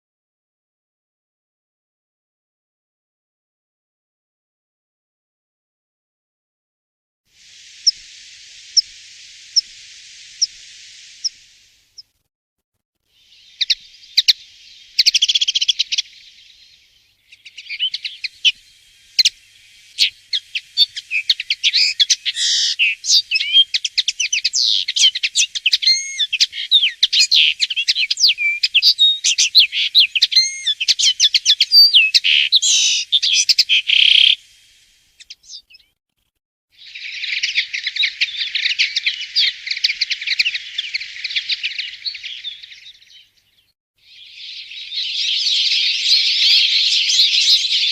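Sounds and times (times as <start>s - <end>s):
bird chirping and twittering: 7.6s - 12.1s, 13.2s - 34.5s, 35.2s - 36.0s, 36.8s - 47.9s.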